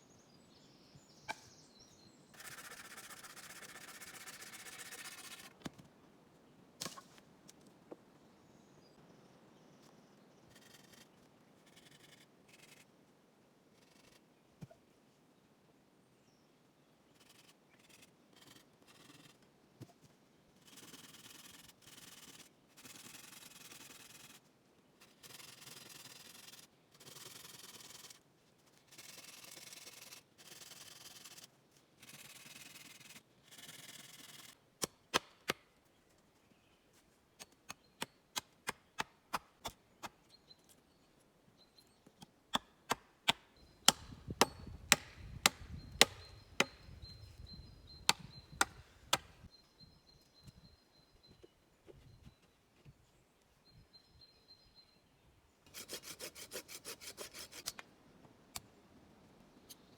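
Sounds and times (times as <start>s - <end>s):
hand tool scraping wood: 42.5s - 46.8s, 55.7s - 57.8s
sharp knocks on wood: 43.3s - 46.8s.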